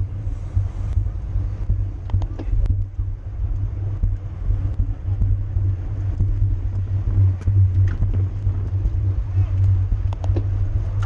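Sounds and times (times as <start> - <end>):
wind rumble on microphone: 0.0 - 11.0
faint clicks: 2.0 - 2.8, 9.6 - 11.0.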